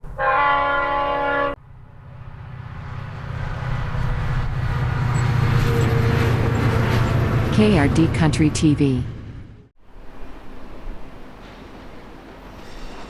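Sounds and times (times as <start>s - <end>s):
locomotive horn: 0.0s - 1.6s, 3.6s - 8.7s
locomotive engine rumble: 1.5s - 13.0s.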